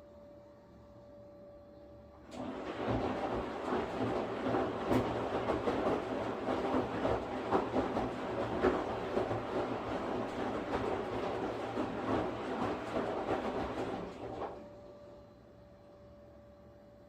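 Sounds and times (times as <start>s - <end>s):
washing machine churning: 2.2s - 15.2s
washing machine drum knocks: 2.6s - 14.6s.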